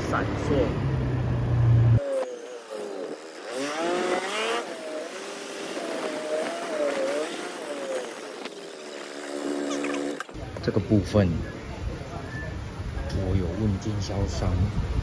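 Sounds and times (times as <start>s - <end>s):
scooter engine running: 1.9s - 10.4s.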